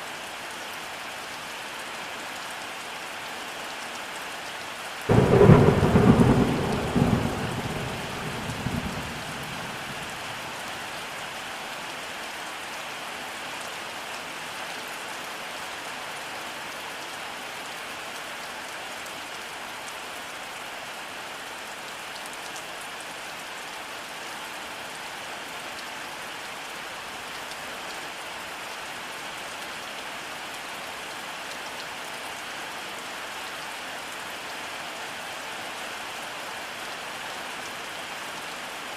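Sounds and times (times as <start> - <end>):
steady rainfall: 0.0 - 38.9
thunder rumble: 5.1 - 10.2.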